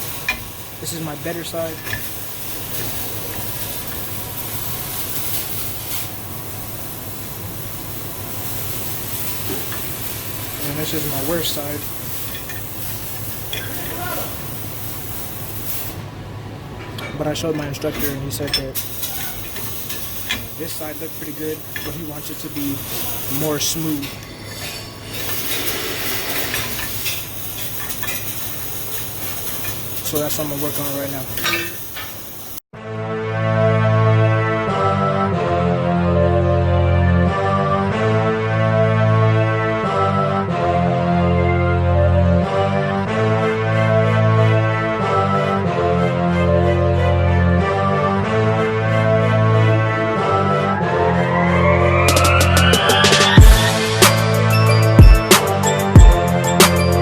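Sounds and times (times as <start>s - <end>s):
faint crackles: 0.0s - 16.0s, 17.4s - 32.6s
low electrical hum: 0.0s - 32.6s
steady hiss: 0.0s - 32.6s, 52.7s - 57.0s.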